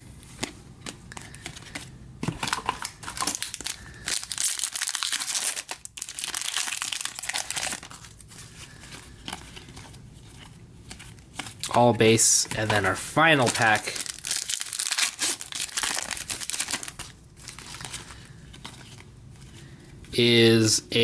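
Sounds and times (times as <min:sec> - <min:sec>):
card pack wrapper tearing and crinkling: 0:02.4 - 0:10.0, 0:12.7 - 0:19.1.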